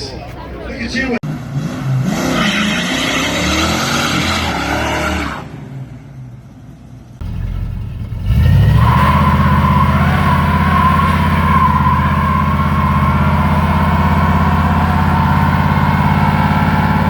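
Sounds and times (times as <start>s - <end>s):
engine revving: 1.2s - 5.5s, 7.2s - 17.0s
engine starting and running: 7.2s - 17.0s.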